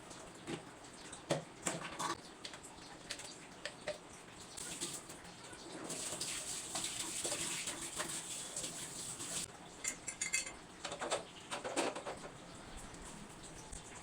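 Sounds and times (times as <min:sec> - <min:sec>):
dishes and utensils clinking: 0:09.8 - 0:12.3.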